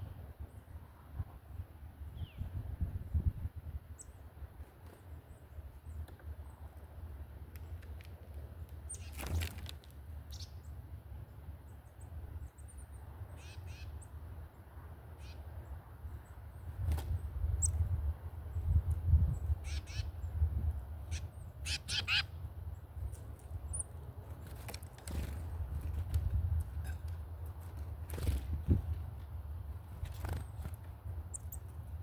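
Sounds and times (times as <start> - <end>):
rustle: 3.6 - 14.1
bird chirps and calls: 12.0 - 14.1, 15.2 - 15.4, 19.3 - 20.3, 21.0 - 22.4.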